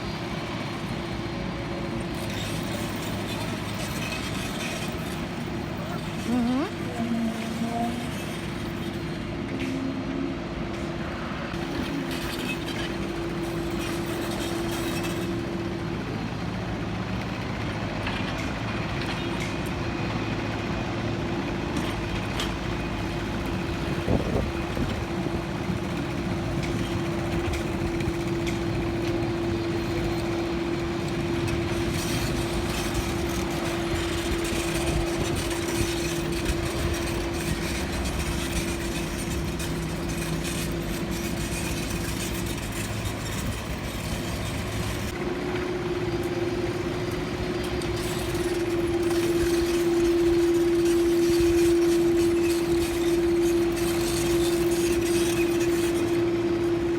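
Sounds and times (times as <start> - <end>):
mechanical drone with hum: 23.2 - 56.9.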